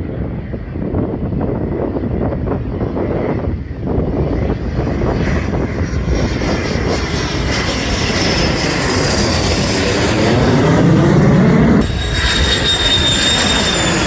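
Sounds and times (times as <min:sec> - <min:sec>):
aircraft engines roaring: 0:00.0 - 0:14.0
wind on microphone: 0:00.0 - 0:14.0
high whine falling in pitch: 0:08.4 - 0:14.0.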